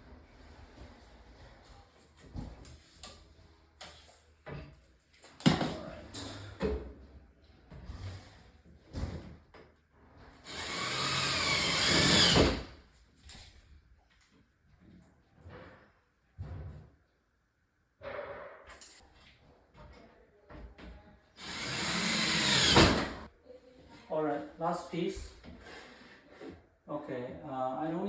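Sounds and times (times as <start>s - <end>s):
power drill driving into wood: 10.4s - 12.7s, 21.4s - 23.3s.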